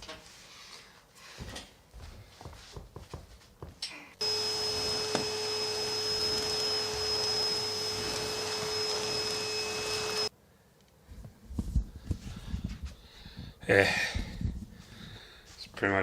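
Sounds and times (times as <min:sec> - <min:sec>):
electric motor whirring: 0:04.2 - 0:10.3.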